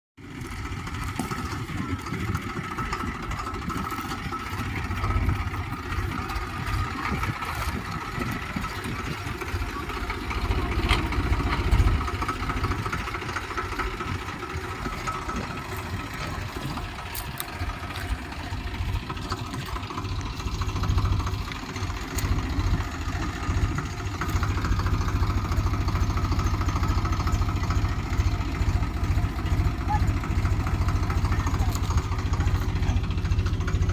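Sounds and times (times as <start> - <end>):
tractor diesel engine running: 0.2 - 33.9.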